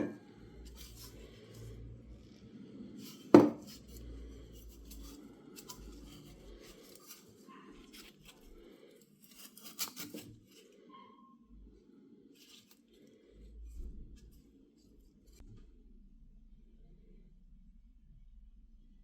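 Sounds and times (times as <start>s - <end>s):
light clicks and scrapes: 0.0s - 2.3s, 2.9s - 10.9s, 12.4s - 15.6s
sharp knock on workbench: 3.4s - 3.6s.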